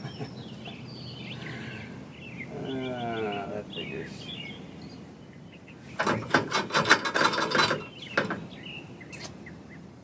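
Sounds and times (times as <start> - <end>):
winch cable scraping and rattling: 5.9 - 8.5.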